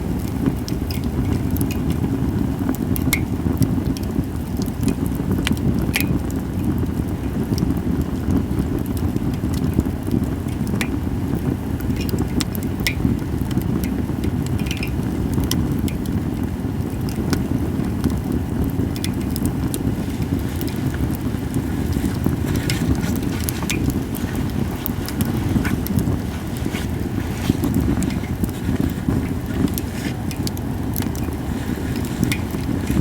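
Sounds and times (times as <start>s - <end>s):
campfire crackling: 0.0s - 33.0s
steady low rumble: 18.8s - 33.0s.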